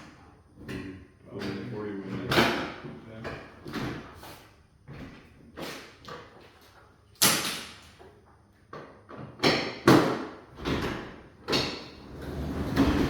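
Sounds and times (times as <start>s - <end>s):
garage door rattling rumble: 11.8s - 13.0s.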